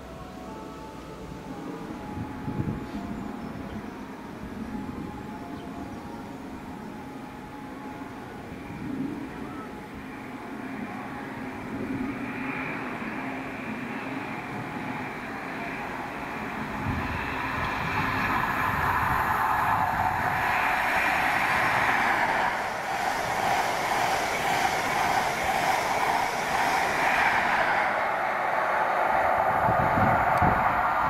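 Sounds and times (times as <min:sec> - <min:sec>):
train running on rails: 0:00.0 - 0:31.0
high hiss: 0:15.8 - 0:31.0.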